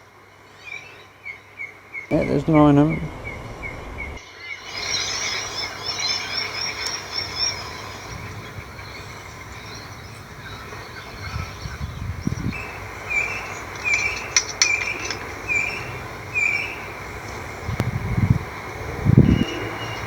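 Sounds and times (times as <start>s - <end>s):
steady outdoor hiss: 0.0s - 20.0s
bird chirping: 2.0s - 17.8s, 18.4s - 20.0s
low thumps: 2.1s - 4.2s.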